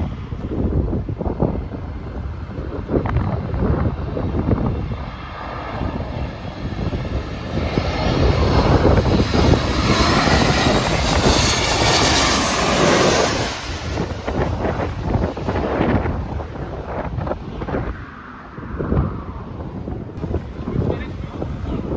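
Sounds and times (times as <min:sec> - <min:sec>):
airliner flying past: 0:00.0 - 0:21.9.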